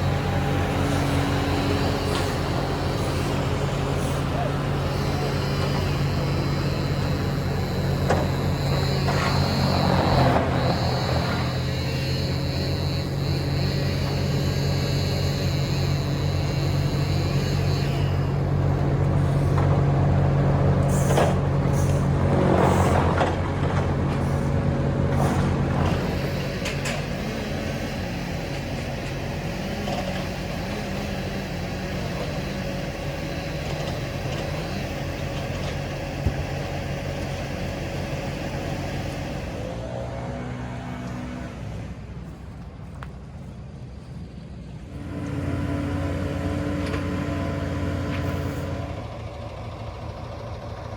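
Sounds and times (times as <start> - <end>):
high whine: 0.0 - 19.8
heavy machinery engine running: 0.0 - 50.9.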